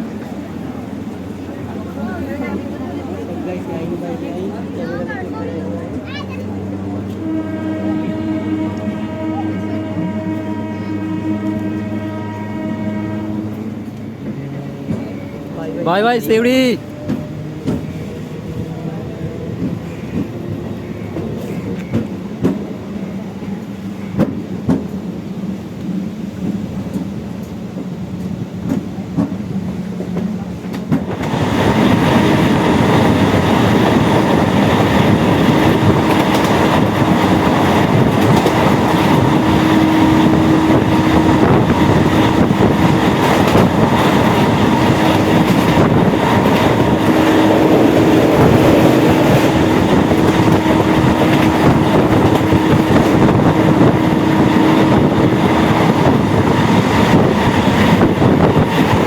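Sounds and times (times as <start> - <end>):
wheel and rail rumble: 0.0 - 59.0
train wheels clickety-clack: 13.4 - 59.0.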